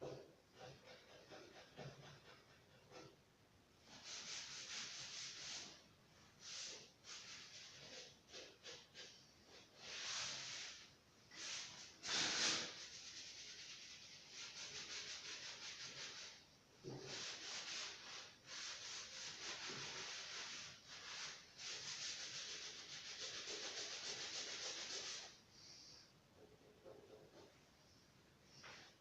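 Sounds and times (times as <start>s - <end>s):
sandpaper rubbing: 3.8s - 5.8s, 6.4s - 25.4s.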